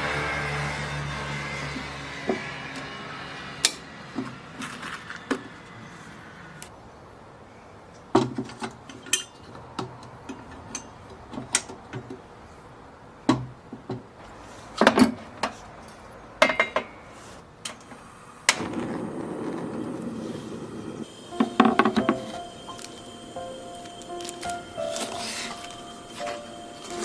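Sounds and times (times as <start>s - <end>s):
steady noise: 17.9s - 27.0s
objects knocking and clinking: 21.3s - 27.0s.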